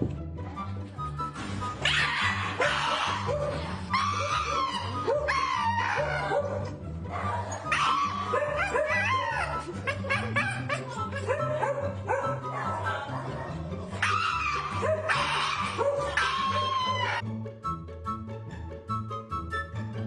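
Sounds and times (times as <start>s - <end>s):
background music with steady beat: 0.0s - 16.0s, 16.9s - 20.0s
dog yelping and whining: 1.8s - 17.2s.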